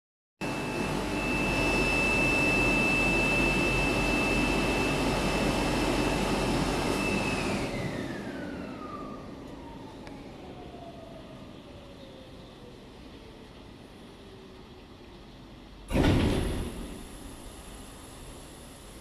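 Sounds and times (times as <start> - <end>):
machine whining at high speed: 0.4 - 14.6.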